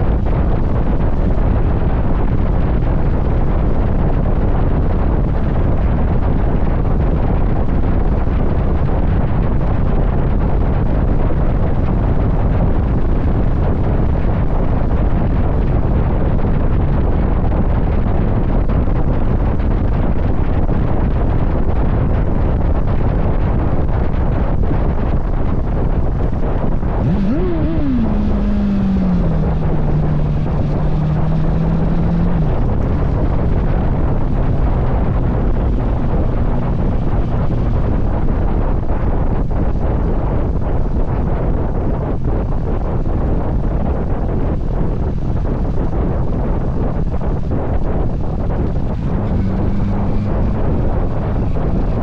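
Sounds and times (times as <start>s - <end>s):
motorcycle riding rush: 0.0s - 52.0s
wind buffeting microphone: 0.0s - 52.0s
pitched hum: 24.3s - 52.0s.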